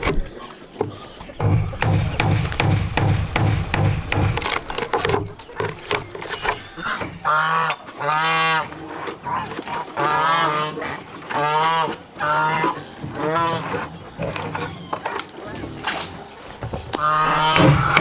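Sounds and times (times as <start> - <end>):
farm animal calling loudly: 6.2 - 15.6, 17.0 - 18.0.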